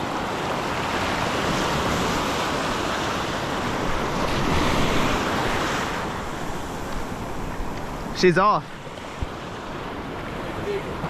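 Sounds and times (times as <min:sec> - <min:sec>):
surf washing: 0:00.0 - 0:11.0
wind buffeting microphone: 0:00.0 - 0:11.0.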